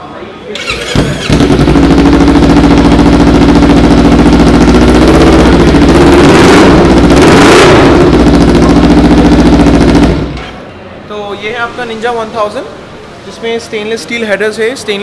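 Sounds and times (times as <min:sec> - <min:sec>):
motorcycle engine idling: 0:00.6 - 0:10.4.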